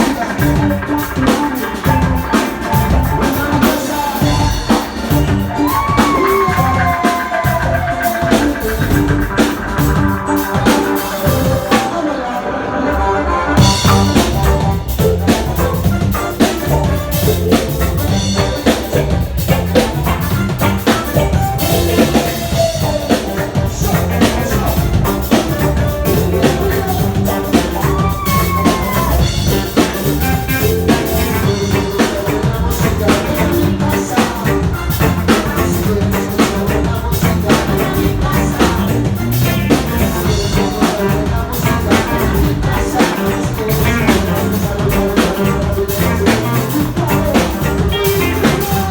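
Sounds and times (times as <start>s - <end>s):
drum kit beat: 0.0s - 12.2s, 13.6s - 48.9s
band playing reggae-ska music: 0.0s - 48.9s.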